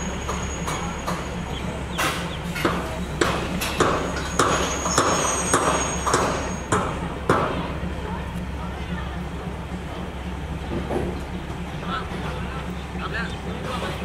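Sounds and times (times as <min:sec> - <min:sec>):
train wheels clacking: 0:00.0 - 0:14.0
steady low drone: 0:06.3 - 0:14.0.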